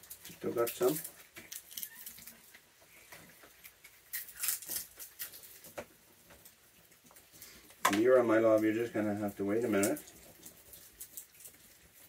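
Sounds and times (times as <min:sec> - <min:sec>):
raccoons feeding clicks and rustles: 0:00.0 - 0:12.0.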